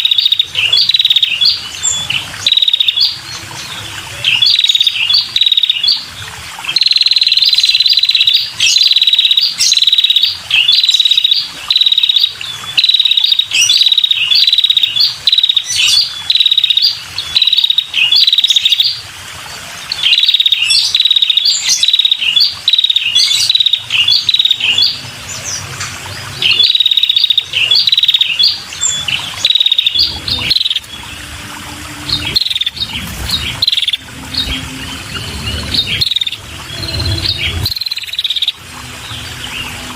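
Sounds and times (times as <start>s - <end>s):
bird buzzy chirps: 26.3s - 39.9s.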